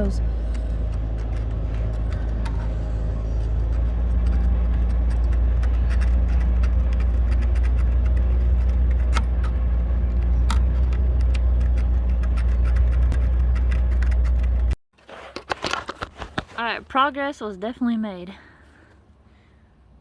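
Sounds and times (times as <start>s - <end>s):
vehicle engine idling: 0.0s - 14.8s.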